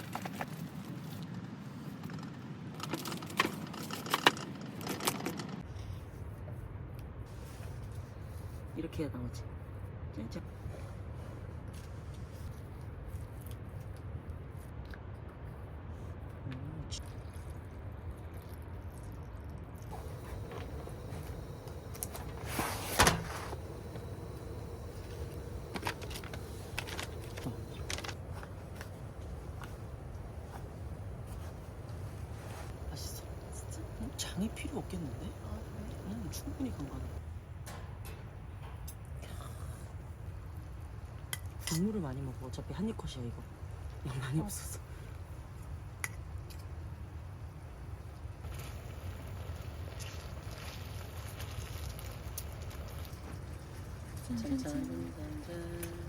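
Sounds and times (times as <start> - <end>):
low background noise: 6.2 - 56.0
steady low hum: 19.8 - 46.0
short rustling: 19.9 - 37.2.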